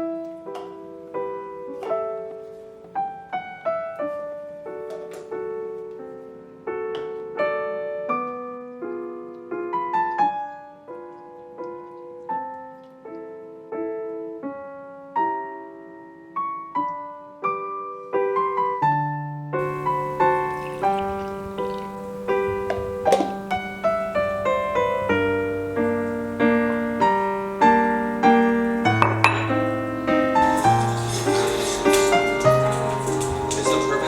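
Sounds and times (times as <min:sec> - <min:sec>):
electric piano melody: 0:00.0 - 0:34.0.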